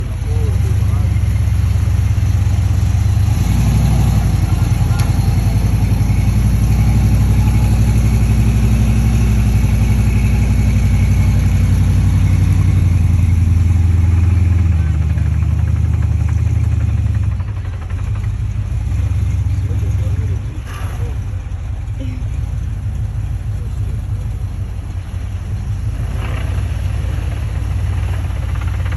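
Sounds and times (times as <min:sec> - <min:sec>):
truck engine rumbling: 0:00.0 - 0:28.9.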